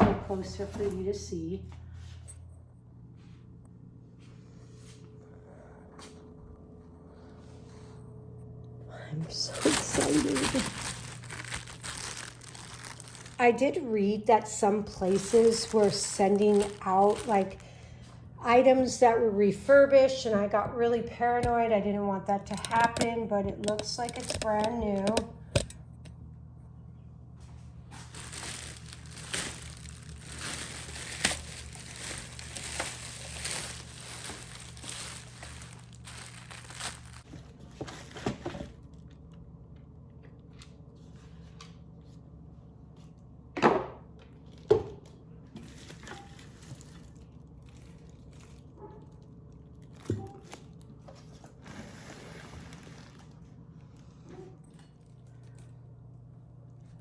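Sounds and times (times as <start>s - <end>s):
packaging crinkling and rustling: 9.4s - 13.7s, 14.4s - 17.8s, 23.6s - 25.7s, 27.8s - 39.3s, 44.4s - 55.7s.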